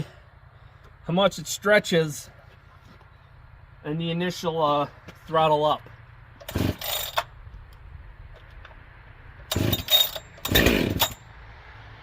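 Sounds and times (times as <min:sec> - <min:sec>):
chainsaw idling and revving: 0:06.4 - 0:07.2, 0:09.4 - 0:11.2.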